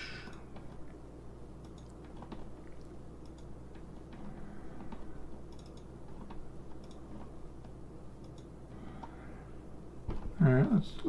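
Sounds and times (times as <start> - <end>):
low steady hum: 0.0 - 11.0
computer mouse clicks: 1.6 - 2.5, 3.2 - 9.2
keyboard typing: 3.2 - 7.4.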